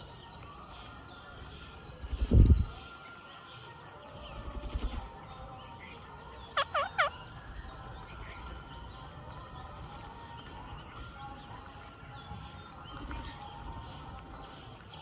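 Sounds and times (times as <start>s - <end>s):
faint chirping: 0.0s - 15.0s
parakeet calls: 4.3s - 11.9s.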